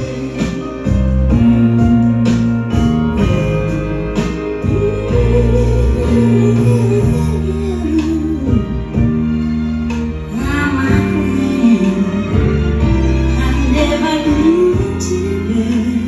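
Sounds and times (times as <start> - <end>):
guitar: 0.0 - 16.0
steady bass: 0.0 - 16.0.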